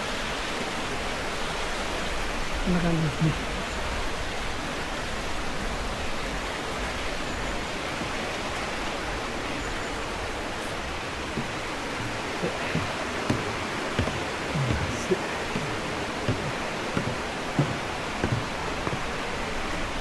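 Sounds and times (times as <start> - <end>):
soft knocks: 11.2 - 19.2.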